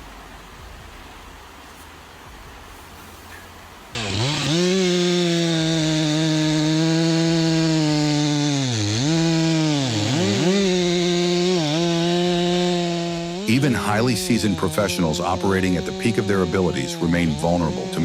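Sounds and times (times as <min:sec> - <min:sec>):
chainsaw engine at high revs: 0:04.0 - 0:18.0.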